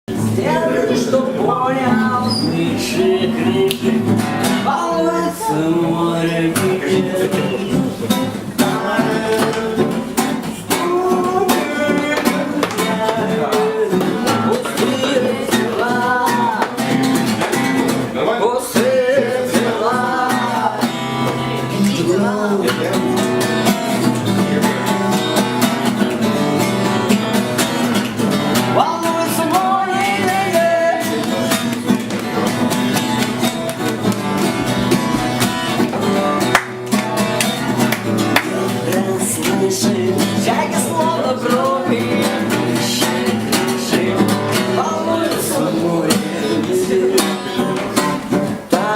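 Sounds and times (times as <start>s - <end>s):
live band with guitar: 0.0s - 48.9s
person singing: 0.1s - 17.4s, 18.1s - 27.3s, 28.6s - 32.2s, 38.1s - 48.9s.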